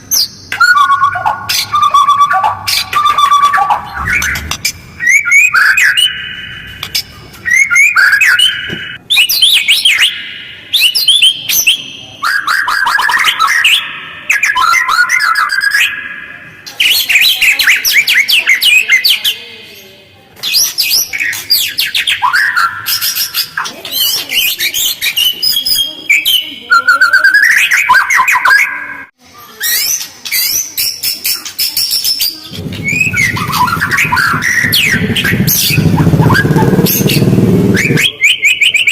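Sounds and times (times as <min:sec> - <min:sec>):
bird singing rapid trills: 0:29.7 - 0:38.7.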